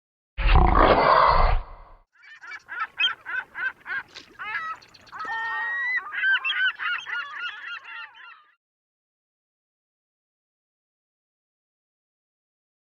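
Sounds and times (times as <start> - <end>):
honking bird calls: 2.2 - 8.5.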